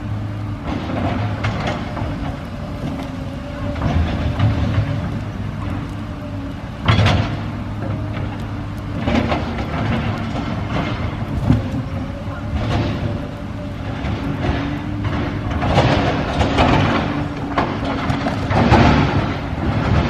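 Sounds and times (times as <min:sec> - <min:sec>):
bonfire rumbling and crackling: 0:00.0 - 0:20.0.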